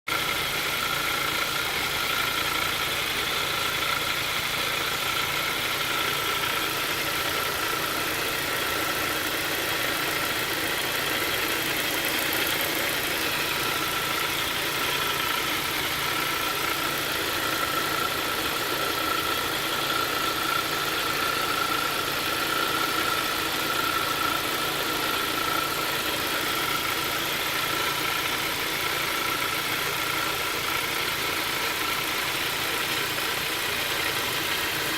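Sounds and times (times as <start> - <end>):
engine idling: 0.1 - 34.9
constant whining tone: 0.3 - 34.9.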